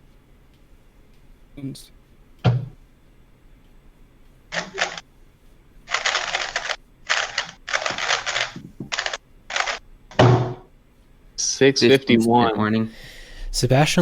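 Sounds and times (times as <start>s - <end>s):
puzzle cube clacking turns: 5.9s - 9.8s.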